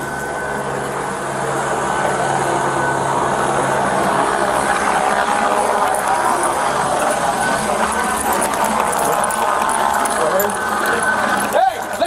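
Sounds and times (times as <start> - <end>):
helicopter rotor drone: 0.0 - 12.0.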